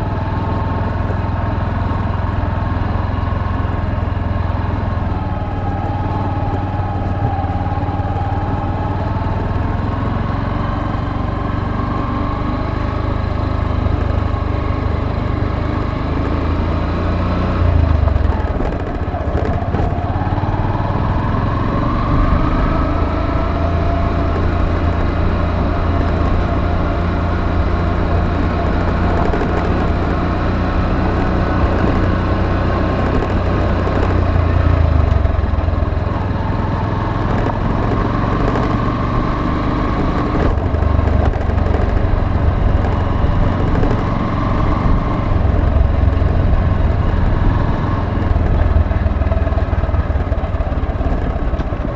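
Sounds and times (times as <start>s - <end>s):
motorcycle engine running: 0.0s - 51.9s
road and wind noise: 0.0s - 51.9s.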